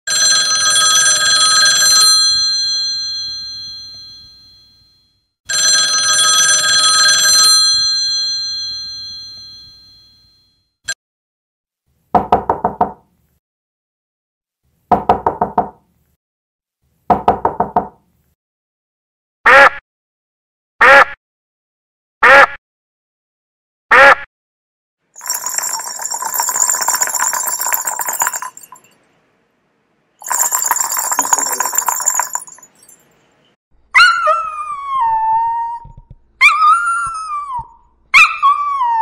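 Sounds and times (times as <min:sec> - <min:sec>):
telephone bell ringing: 0:00.1 - 0:10.6, 0:25.2 - 0:28.9, 0:30.2 - 0:32.9.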